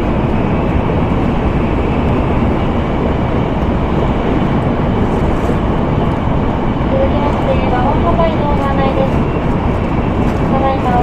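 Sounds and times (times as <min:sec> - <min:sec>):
train running at speed: 0:00.0 - 0:11.0.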